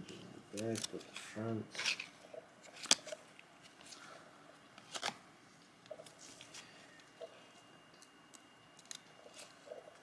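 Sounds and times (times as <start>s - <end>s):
cards ticking and scraping: 0.5s - 4.0s
trading cards rustling: 0.5s - 4.2s, 4.8s - 5.2s.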